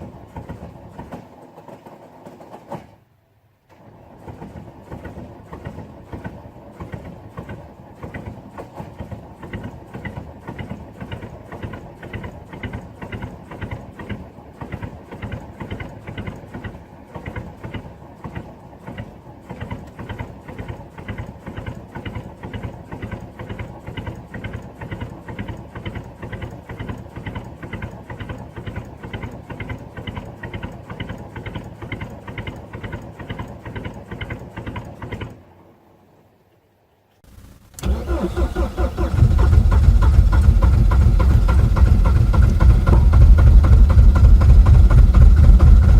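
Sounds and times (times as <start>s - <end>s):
diesel engine knocking: 0.0s - 2.8s, 3.9s - 35.5s, 37.3s - 45.9s.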